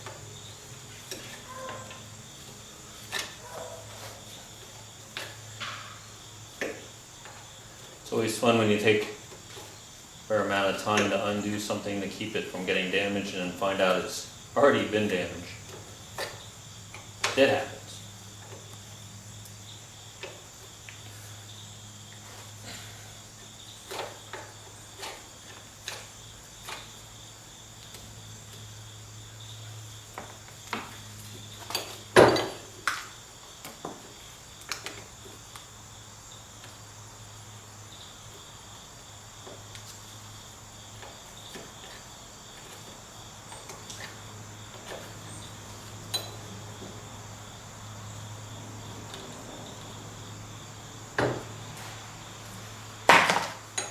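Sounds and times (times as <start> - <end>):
hand tools knocking on metal: 53.1 - 53.9.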